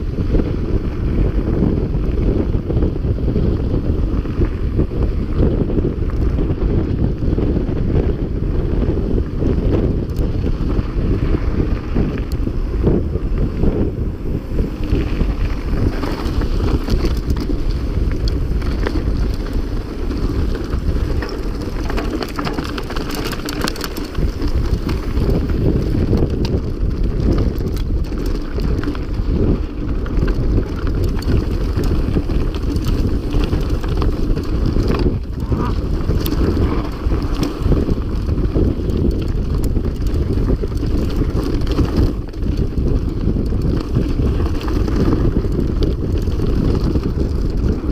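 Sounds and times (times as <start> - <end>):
bike rattling over rough ground: 0.0 - 47.9
wind buffeting microphone: 0.0 - 47.9.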